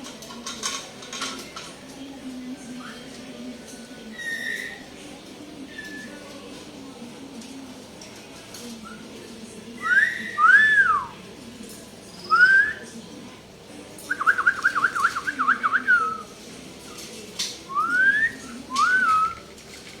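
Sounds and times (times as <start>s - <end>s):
myna whistling: 12.2s - 12.9s.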